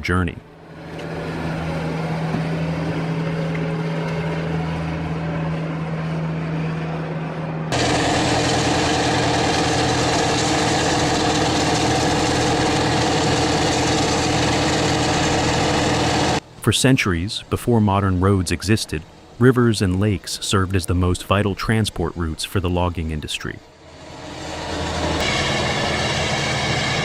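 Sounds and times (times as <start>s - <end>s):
rough pulsing engine: 0.5s - 16.5s, 23.7s - 27.0s
heavy machinery engine running: 0.6s - 16.5s, 23.8s - 27.0s.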